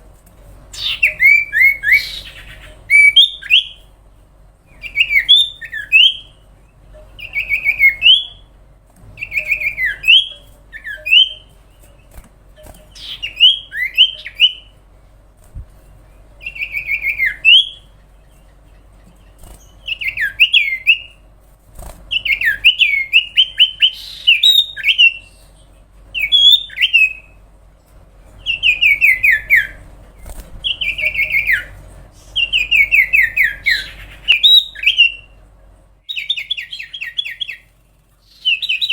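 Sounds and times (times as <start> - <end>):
bird singing whistled notes: 0.8 - 3.8, 4.7 - 6.4, 7.2 - 8.5, 9.2 - 11.5, 13.0 - 14.7, 16.4 - 17.9, 19.7 - 21.2, 22.1 - 25.4, 26.2 - 27.4, 32.4 - 35.4, 36.1 - 37.7, 38.3 - 38.9.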